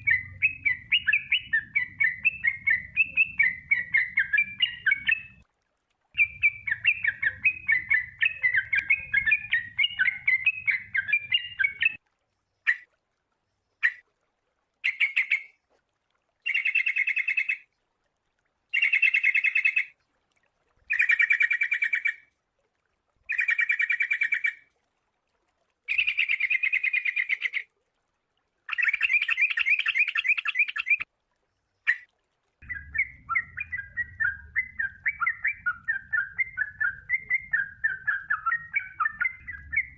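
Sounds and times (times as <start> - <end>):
bird chattering and trilling: 6.2 - 12.0, 23.3 - 24.6, 28.7 - 31.0.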